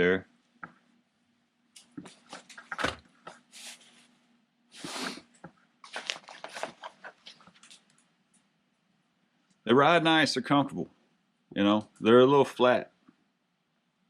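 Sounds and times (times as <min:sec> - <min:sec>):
gloves rustling and clicking: 0:04.8 - 0:08.5.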